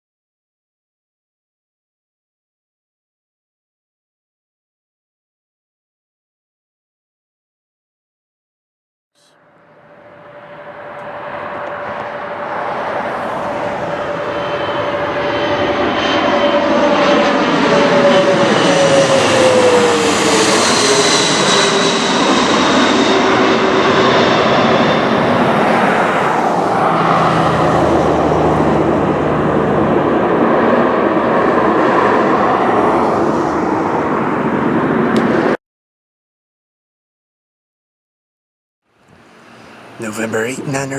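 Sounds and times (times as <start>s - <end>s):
airplane engine passing: 9.2s - 35.6s, 39.1s - 40.9s.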